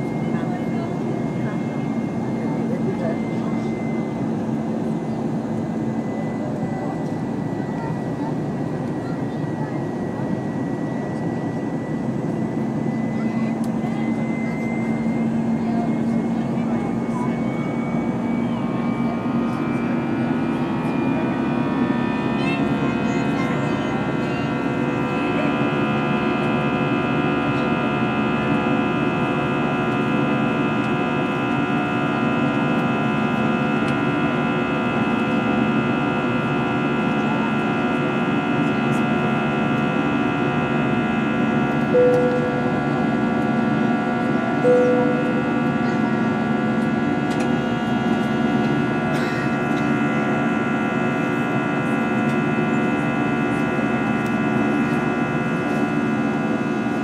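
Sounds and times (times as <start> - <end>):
airplane cabin drone: 0.0 - 57.0
steady humming tones: 0.0 - 57.0
short chime tones: 41.9 - 43.1, 44.6 - 45.8.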